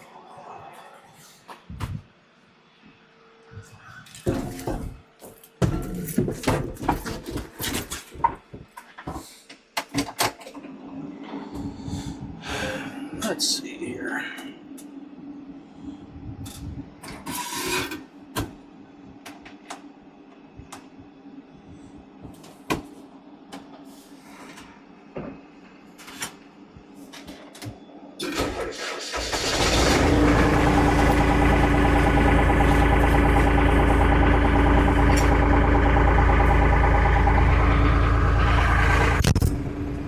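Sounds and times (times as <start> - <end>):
tractor diesel engine starting and idling: 28.2 - 40.0.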